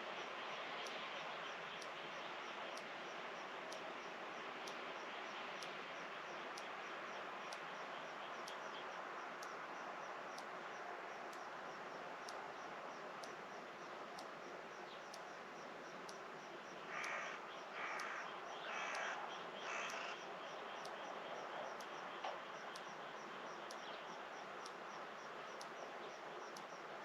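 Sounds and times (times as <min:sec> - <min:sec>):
outdoor hiss: 0:00.0 - 0:27.0
crow cawing: 0:16.9 - 0:20.2.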